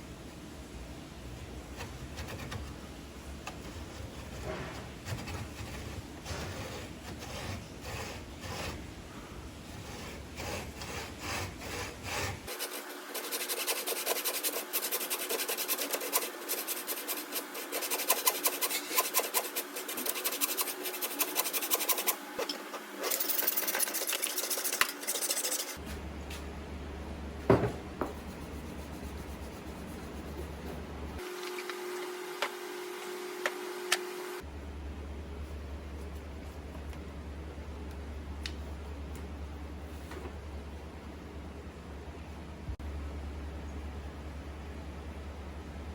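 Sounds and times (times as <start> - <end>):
hand tool scraping wood: 3.8 - 8.8, 9.7 - 25.8.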